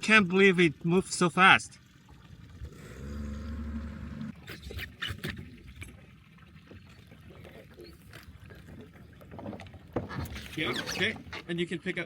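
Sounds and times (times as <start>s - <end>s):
water slapping against hull: 3.9s - 11.6s
sharp knocks and splashes: 4.2s - 11.5s.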